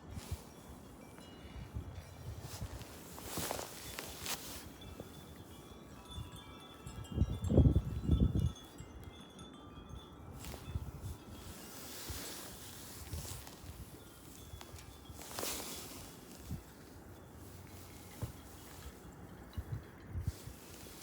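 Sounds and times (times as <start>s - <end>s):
wind chimes ringing: 0.0s - 21.0s
wind gust on microphone: 1.5s - 8.9s, 17.4s - 21.0s.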